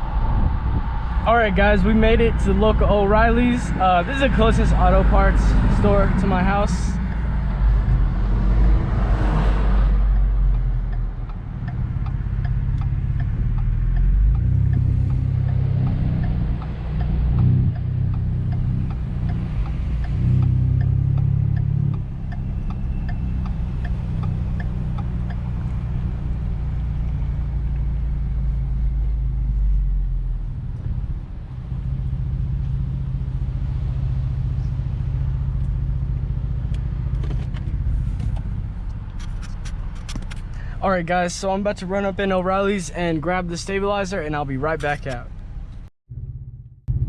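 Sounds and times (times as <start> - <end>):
truck engine rumble from inside cab: 0.0 - 47.0
faint regular ticking: 10.0 - 27.9.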